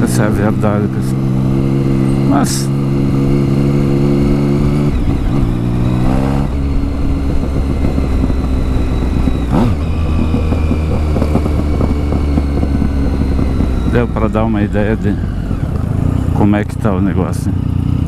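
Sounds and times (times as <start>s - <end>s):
gear change with revs climbing: 0.0s - 18.0s
motorcycle engine riding: 0.0s - 18.0s.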